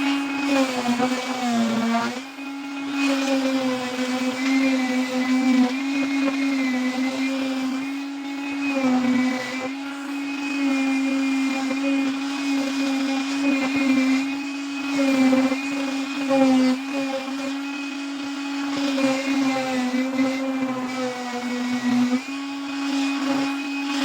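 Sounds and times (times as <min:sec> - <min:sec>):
electric grinder grinding metal: 0:00.0 - 0:24.0.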